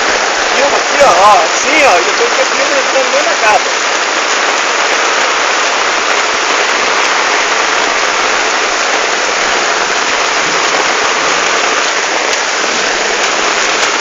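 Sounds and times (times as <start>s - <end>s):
heavy rain: 0.0s - 14.0s
running water: 0.0s - 14.0s.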